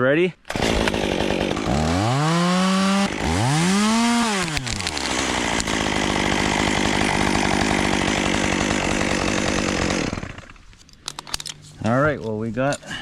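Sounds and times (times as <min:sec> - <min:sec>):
chainsaw revving and cutting: 0:00.5 - 0:10.7.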